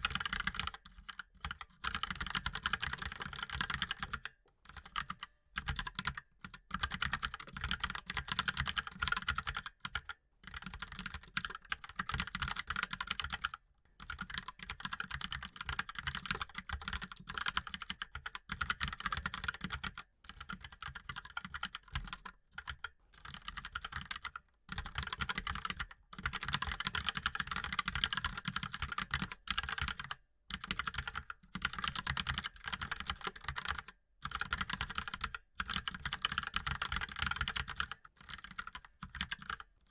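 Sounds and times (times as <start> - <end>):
mechanical keyboard typing: 0.0 - 39.7.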